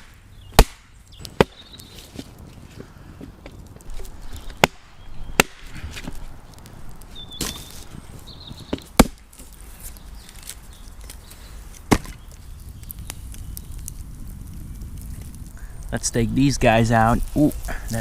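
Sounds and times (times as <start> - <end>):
chopping on wood: 0.0 - 0.8, 8.7 - 9.2, 11.9 - 12.2.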